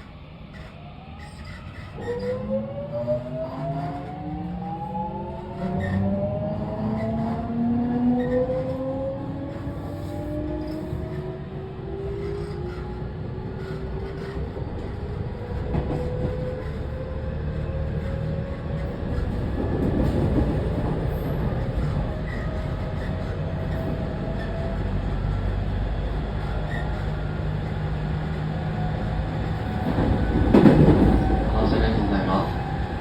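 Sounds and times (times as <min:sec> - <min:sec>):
wheels rumbling on rail: 0:00.0 - 0:33.0.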